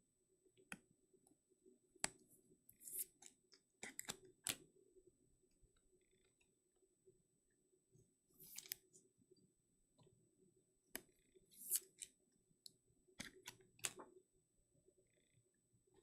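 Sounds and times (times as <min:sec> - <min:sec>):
cards and plastic handled clicks: 0:08.4 - 0:08.8, 0:11.0 - 0:12.2.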